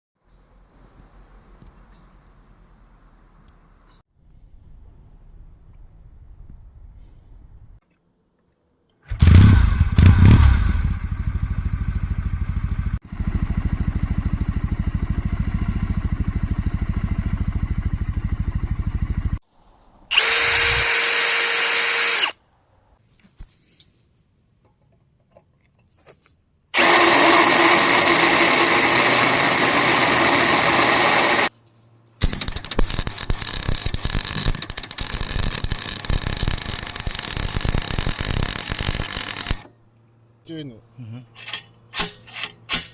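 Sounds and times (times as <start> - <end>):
motorcycle engine running: 9.1 - 19.4
power drill bursts: 20.1 - 22.4, 26.8 - 31.5, 32.2 - 39.7.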